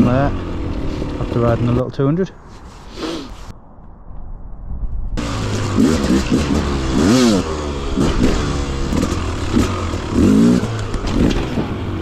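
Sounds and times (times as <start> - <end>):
motorcycle engine revving: 0.0 - 1.8, 5.2 - 12.0.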